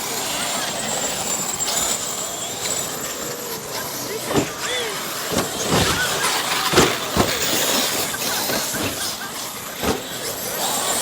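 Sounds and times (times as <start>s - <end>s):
electric motors whining: 0.0s - 11.0s
rc trucks landing thuds: 2.8s - 11.0s.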